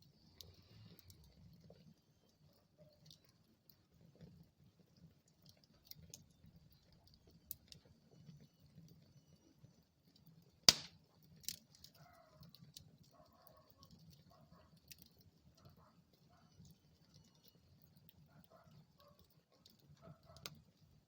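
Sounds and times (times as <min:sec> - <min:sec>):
wood fire crackling: 0:00.0 - 0:21.0
fire popping: 0:00.1 - 0:21.0.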